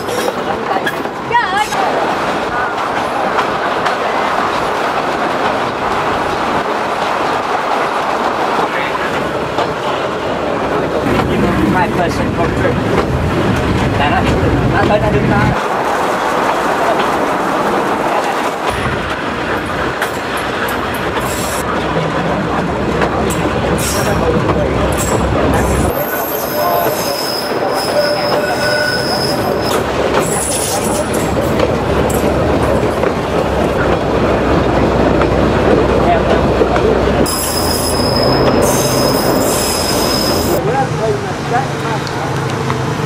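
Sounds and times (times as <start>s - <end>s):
train wheels rumbling and rattling: 0.0s - 43.0s
high-pitched wheel squeals: 25.9s - 31.0s, 37.3s - 40.6s.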